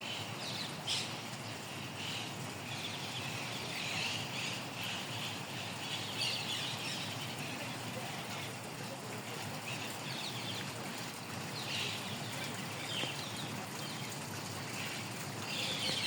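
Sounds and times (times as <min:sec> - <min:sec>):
birds chirping: 0:09.5 - 0:16.0.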